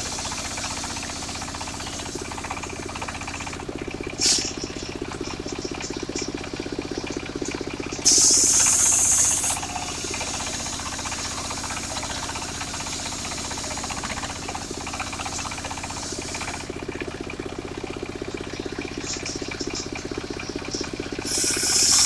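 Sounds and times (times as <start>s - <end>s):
sawmill engine running: 0.0s - 22.0s
saw blade cutting timber: 8.0s - 14.8s, 21.3s - 22.0s.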